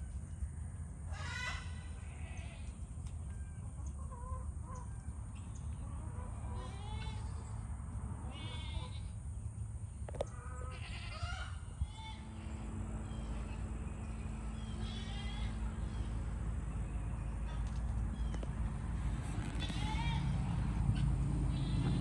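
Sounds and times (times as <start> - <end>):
farm animals bleating: 1.1 - 2.8, 6.3 - 7.5, 8.2 - 9.2, 10.2 - 16.2, 19.2 - 22.0
steady low rumble: 11.6 - 22.0.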